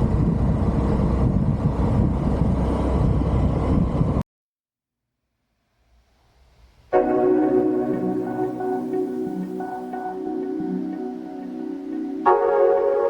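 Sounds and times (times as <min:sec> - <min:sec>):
vehicle engine and road noise: 0:00.0 - 0:04.2.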